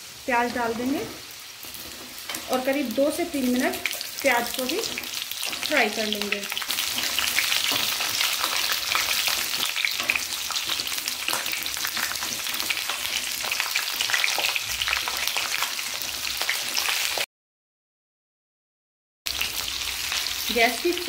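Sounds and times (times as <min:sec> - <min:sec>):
potatoes frying in hot oil: 0:00.0 - 0:17.3, 0:19.3 - 0:21.0
wooden spatula scraping pan: 0:01.0 - 0:02.6, 0:06.7 - 0:13.6.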